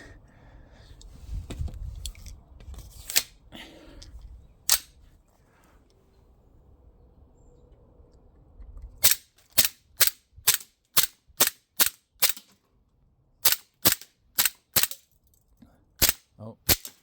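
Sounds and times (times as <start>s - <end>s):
air pistol cracks: 4.7s - 4.9s, 9.0s - 12.5s, 13.4s - 15.0s, 16.0s - 17.0s.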